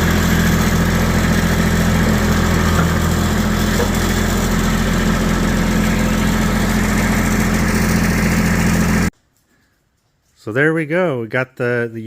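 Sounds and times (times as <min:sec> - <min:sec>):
vehicle engine humming: 0:00.0 - 0:09.1.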